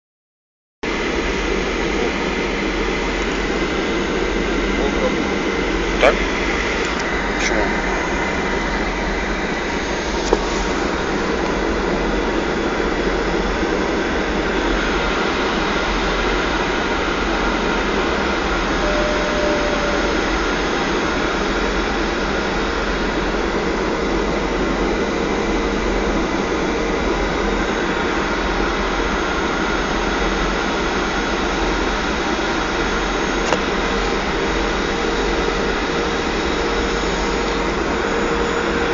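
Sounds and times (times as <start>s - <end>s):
jet engine and airflow rush: 0.9s - 38.9s
faint steady tones: 17.5s - 22.1s.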